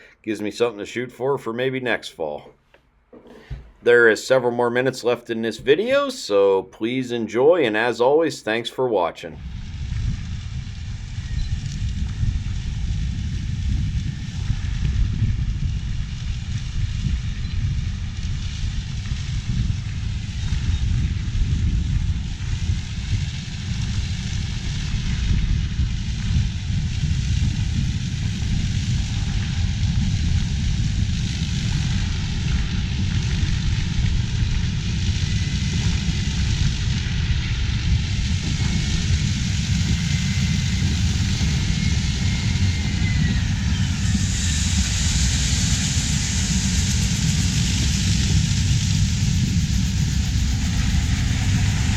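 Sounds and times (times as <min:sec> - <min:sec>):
rushing noise: 0:09.4 - 0:51.9
faint high whistle: 0:41.5 - 0:45.0.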